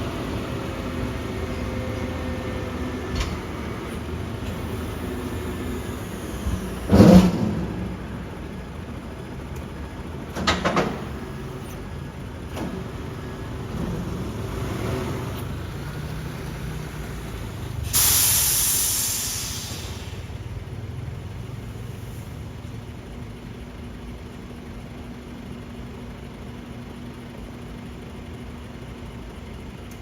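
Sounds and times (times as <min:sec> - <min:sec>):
heavy truck rumbling: 0:00.0 - 0:25.6
air brake hiss: 0:17.8 - 0:20.4.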